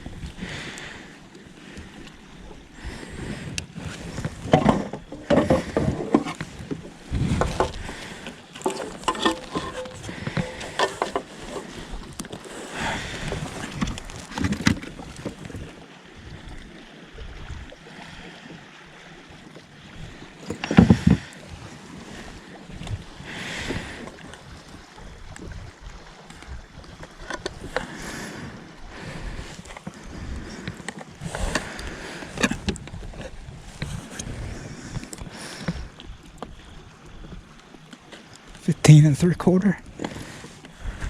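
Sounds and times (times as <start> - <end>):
water sloshing: 0.0 - 41.0
wind on microphone: 2.4 - 17.8, 19.9 - 37.5
knocks and bumps on a kayak: 3.8 - 11.9, 12.8 - 15.6, 20.4 - 21.7.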